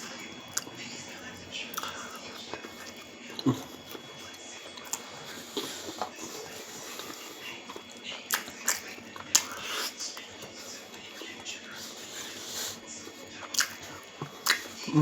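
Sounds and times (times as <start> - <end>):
person chewing with mouth smacks: 0.0 - 0.7, 1.7 - 10.3, 13.4 - 15.0.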